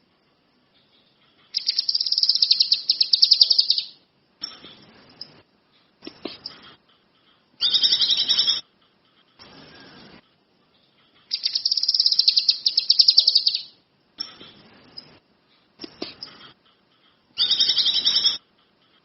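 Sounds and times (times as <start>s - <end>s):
songbird singing fast trills: 1.6s - 4.0s, 7.6s - 8.6s, 11.3s - 13.8s, 17.4s - 18.4s.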